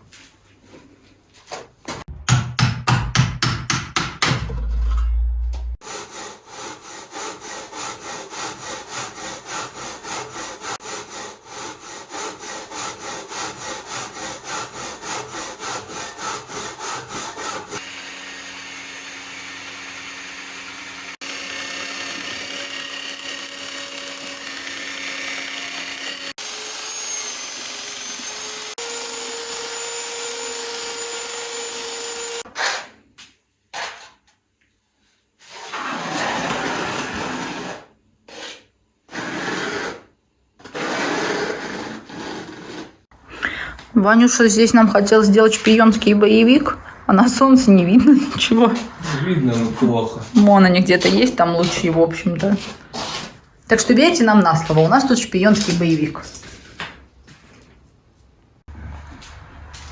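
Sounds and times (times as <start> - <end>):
heavy knocks: 2.1 - 5.1
hand saw cutting: 5.8 - 33.0, 35.4 - 43.1, 48.0 - 56.8.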